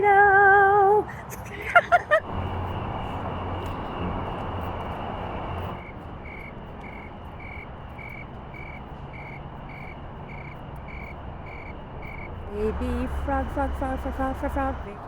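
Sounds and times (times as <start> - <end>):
rushing noise with low hum: 1.0 - 15.0
insects trilling and chirping: 2.2 - 13.9.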